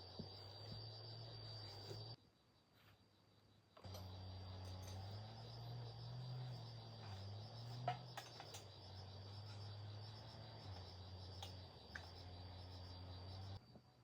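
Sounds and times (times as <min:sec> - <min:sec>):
insect chirring: 0:00.0 - 0:13.6
faint motor hum: 0:03.8 - 0:13.9.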